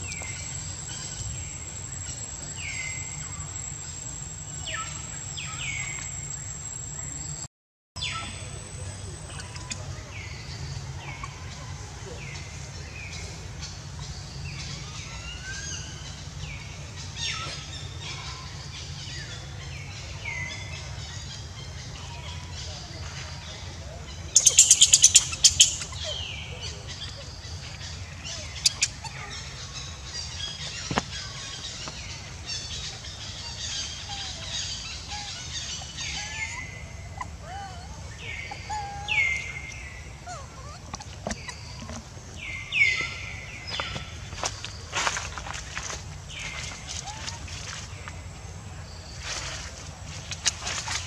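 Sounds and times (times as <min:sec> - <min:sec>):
birds chirping: 0:00.0 - 0:51.0
low outdoor background hum: 0:00.0 - 0:51.0
loud whistled bird calls: 0:24.3 - 0:27.2.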